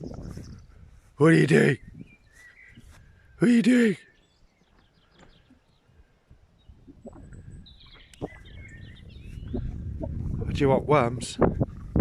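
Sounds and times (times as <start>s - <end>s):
faint bird chirps: 1.8s - 3.4s, 4.1s - 10.0s.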